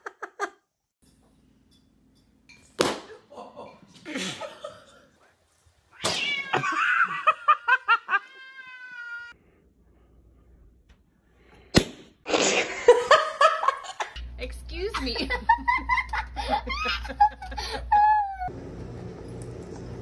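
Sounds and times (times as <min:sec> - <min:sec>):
cat meowing and yowling: 0:06.0 - 0:07.2, 0:08.1 - 0:09.4.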